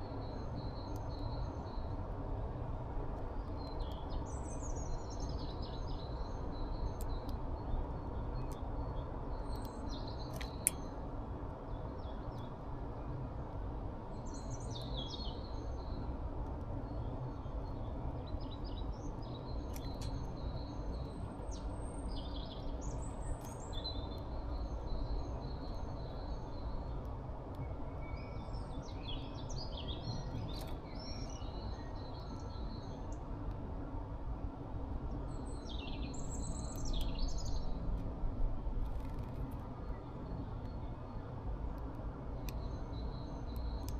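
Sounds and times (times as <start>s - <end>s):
songbirds chirping: 3.3s - 37.9s, 39.4s - 43.9s.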